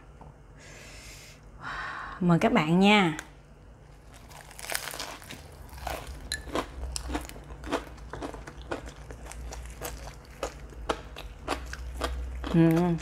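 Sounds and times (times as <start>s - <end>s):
person chewing crunchy food: 4.0s - 13.0s.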